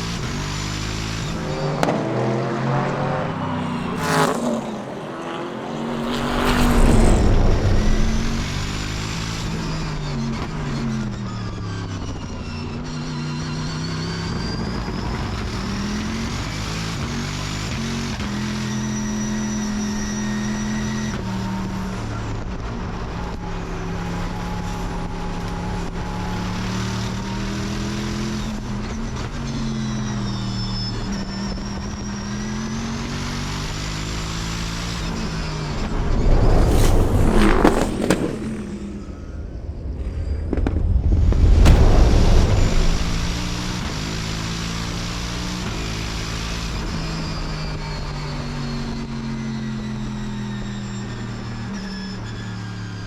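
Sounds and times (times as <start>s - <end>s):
race car engine running: 0.0s - 53.0s
rushing noise: 2.3s - 10.4s, 34.6s - 45.2s.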